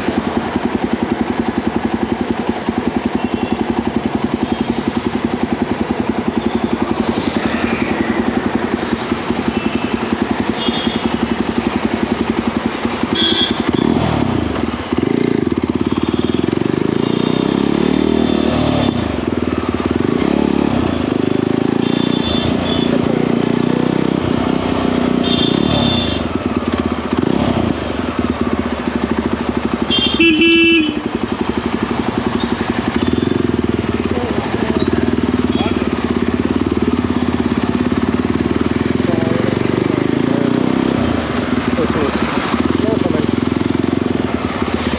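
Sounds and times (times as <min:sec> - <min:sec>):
motorcycle engine accelerating: 0:00.0 - 0:44.9
motorcycle horn toots: 0:03.0 - 0:04.8, 0:09.4 - 0:11.4, 0:13.0 - 0:14.0, 0:15.8 - 0:19.2, 0:21.7 - 0:23.2, 0:25.1 - 0:26.5, 0:29.7 - 0:31.5, 0:32.3 - 0:33.8, 0:34.8 - 0:36.1.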